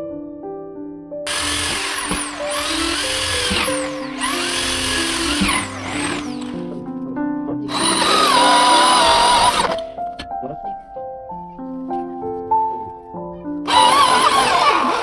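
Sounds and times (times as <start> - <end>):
power tool whine on wood: 1.3 - 6.8, 7.7 - 9.9, 13.7 - 15.0.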